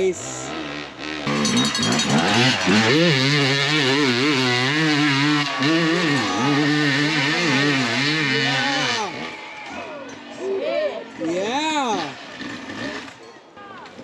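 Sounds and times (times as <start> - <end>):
dirt bike engine revving: 0.0 - 10.3, 11.1 - 13.2.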